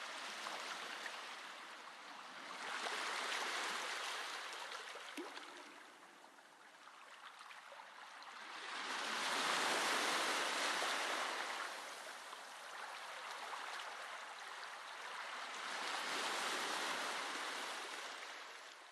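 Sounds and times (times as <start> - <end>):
ocean waves washing on shore: 8.5 - 18.6.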